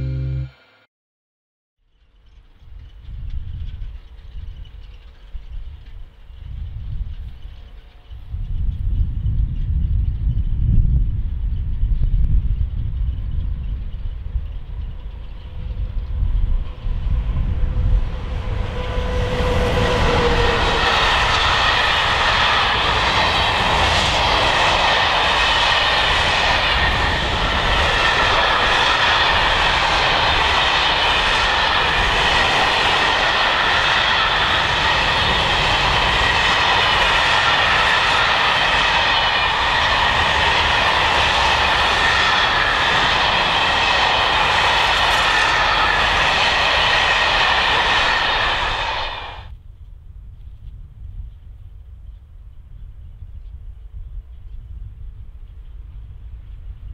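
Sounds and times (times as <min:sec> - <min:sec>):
high ringing tones: 0:00.0 - 0:00.9
locomotive tone falling in pitch: 0:00.0 - 0:00.9
train wheels rumbling on rail: 0:02.0 - 0:56.9.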